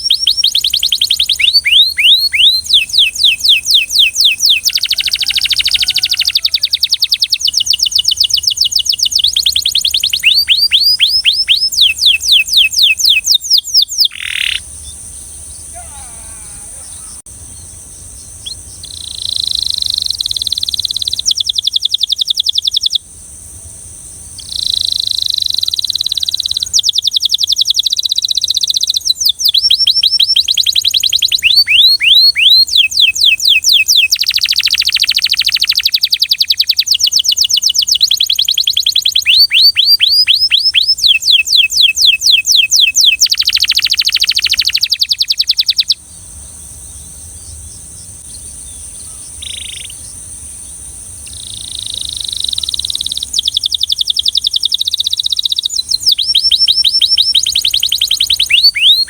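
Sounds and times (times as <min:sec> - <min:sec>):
canary singing fast trills: 0:00.0 - 0:23.1, 0:24.3 - 0:59.0
faint high hiss: 0:12.1 - 0:27.5, 0:44.6 - 0:58.9.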